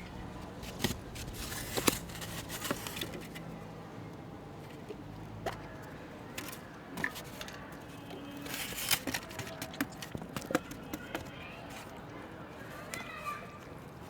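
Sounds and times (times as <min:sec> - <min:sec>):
handling rustles and crackles: 0:00.0 - 0:14.0.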